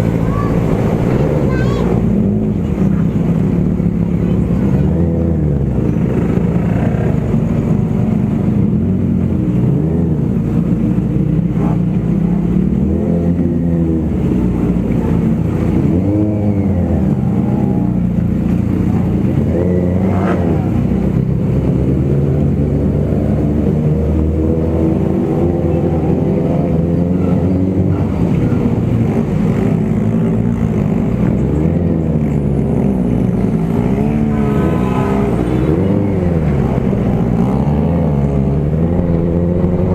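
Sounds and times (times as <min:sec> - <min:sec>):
low rumble: 0:00.0 - 0:02.8, 0:32.5 - 0:39.9
motorcycle engine revving: 0:00.0 - 0:39.9.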